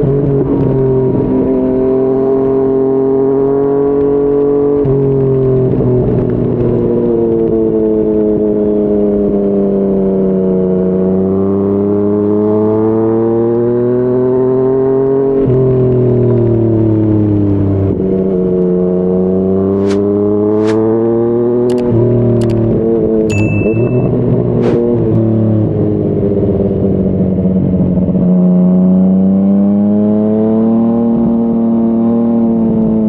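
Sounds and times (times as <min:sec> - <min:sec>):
motorcycle engine accelerating: 0:00.0 - 0:33.0
sharp clicks: 0:21.7 - 0:22.6.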